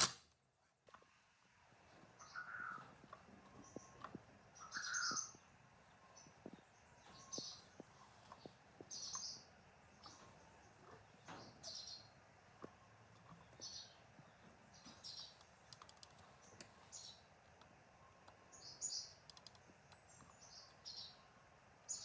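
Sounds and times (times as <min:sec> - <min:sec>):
faint bird chirps: 0:02.1 - 0:22.0
faint clicks: 0:14.4 - 0:20.9.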